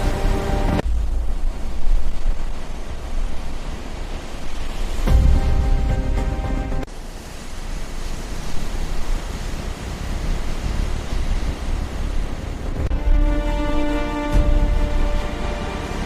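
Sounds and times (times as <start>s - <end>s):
music: 0.0s - 0.8s, 5.1s - 6.9s, 12.9s - 16.0s
rushing noise with rumble: 0.0s - 16.0s.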